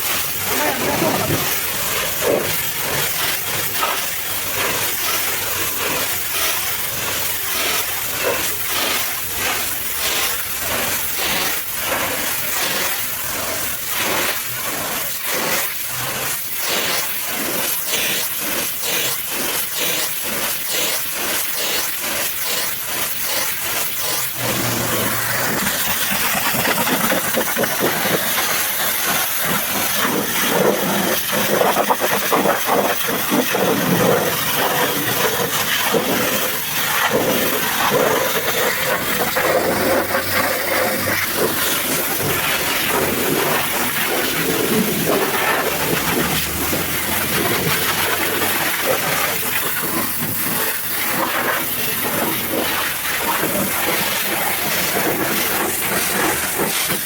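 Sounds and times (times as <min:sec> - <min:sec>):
pressure washer spraying: 0:00.0 - 0:57.0.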